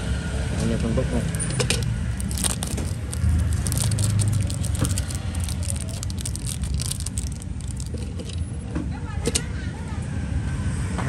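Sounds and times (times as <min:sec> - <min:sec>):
low rumble of road traffic: 0:00.0 - 0:11.0
metal lighters clicking and rattling: 0:01.2 - 0:08.4.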